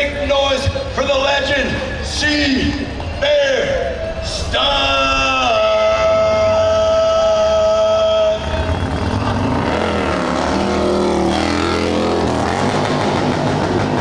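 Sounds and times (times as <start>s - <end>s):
motorcycle engine revving: 8.4s - 14.0s.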